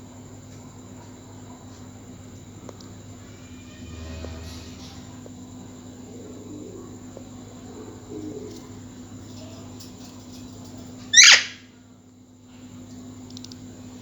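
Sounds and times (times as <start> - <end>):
parrot loud squawk: 11.1 - 11.6.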